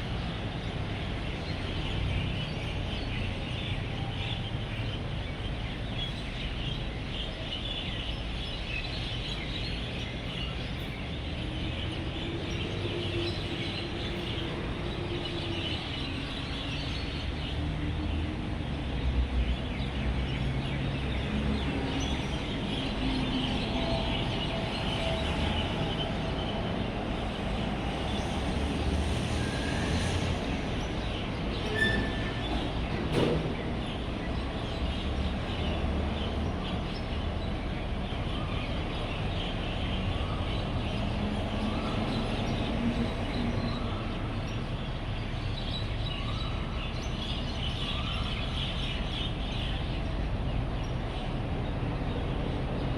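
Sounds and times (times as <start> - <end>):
flock of birds chirping: 0.0 - 52.9
road traffic rumble: 0.0 - 52.9.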